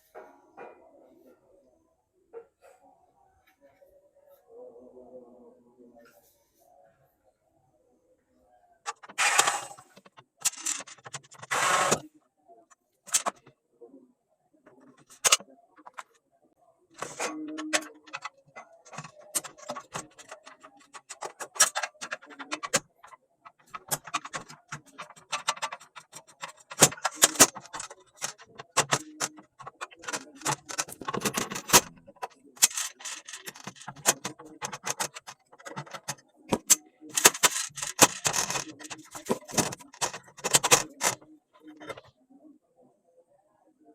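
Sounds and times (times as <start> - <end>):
hand tools and metal parts clattering: 8.9 - 12.0, 13.1 - 13.5, 14.7 - 16.2, 17.0 - 42.1.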